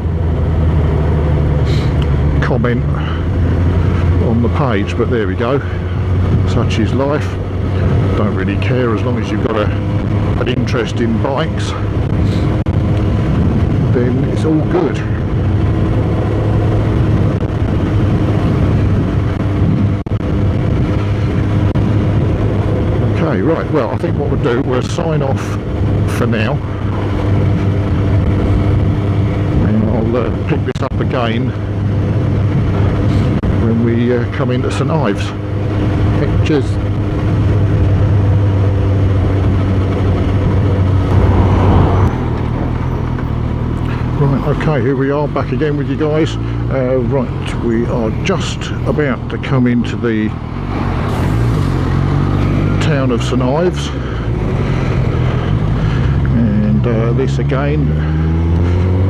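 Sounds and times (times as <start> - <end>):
road noise: 0.0 - 59.0
wind noise: 11.8 - 23.1, 39.4 - 44.8
motorcycle engine cruising: 36.9 - 45.2.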